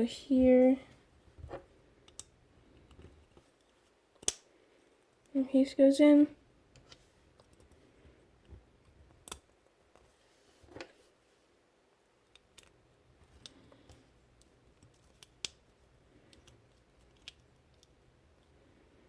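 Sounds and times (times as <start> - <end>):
small plastic parts clicking: 1.5 - 4.5, 8.4 - 9.5, 12.2 - 18.5.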